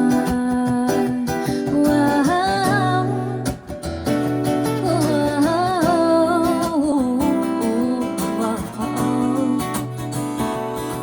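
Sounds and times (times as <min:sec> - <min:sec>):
acoustic guitar: 0:00.0 - 0:11.0
wordless sung vocal: 0:00.0 - 0:11.0.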